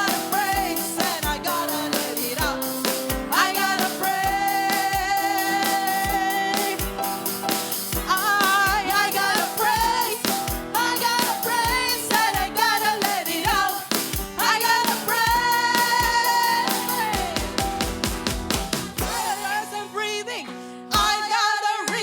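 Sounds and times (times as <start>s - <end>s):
woman singing: 0.0s - 7.3s, 8.0s - 22.0s
keyboard chords: 0.0s - 13.3s, 15.5s - 19.5s
kick drum beat: 17.0s - 19.2s.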